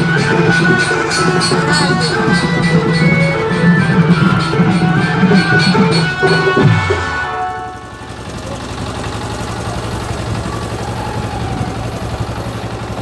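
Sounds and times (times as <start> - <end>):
music with tabla: 0.0 - 7.9
low engine idle: 0.0 - 13.0.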